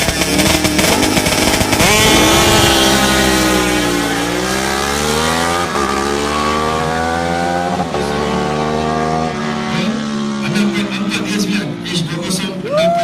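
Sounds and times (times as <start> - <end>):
motorcycle engine accelerating hard: 0.0 - 12.4.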